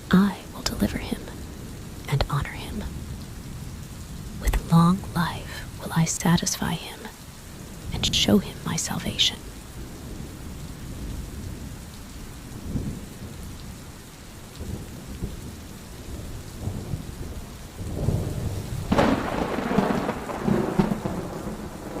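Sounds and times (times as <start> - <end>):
steady rain: 0.0 - 22.0
low rolling thunder: 12.5 - 13.5, 14.6 - 22.0
loud thunderclap: 16.6 - 22.0.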